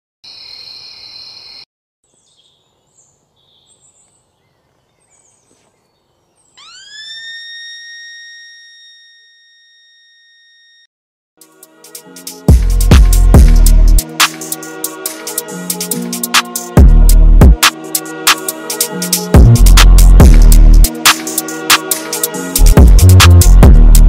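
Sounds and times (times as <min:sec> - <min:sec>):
birds chirping faintly: 0:00.3 - 0:07.2
electronic tone swooping up: 0:06.6 - 0:10.8.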